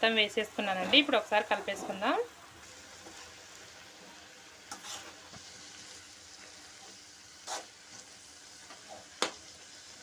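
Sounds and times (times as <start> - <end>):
leaves sizzling in oil: 0.0 - 10.0
spatula scraping a pan: 0.8 - 2.2, 4.0 - 9.1.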